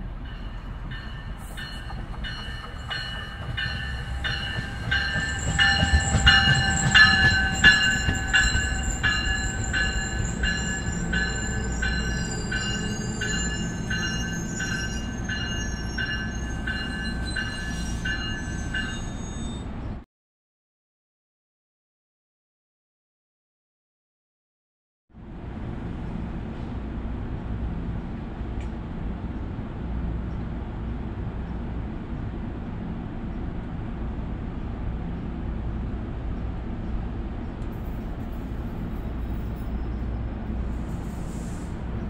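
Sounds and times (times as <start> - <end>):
train rumble: 0.0 - 20.0, 25.2 - 42.0
locomotive bell ringing: 0.1 - 19.6
high wheel squeal: 0.4 - 20.0.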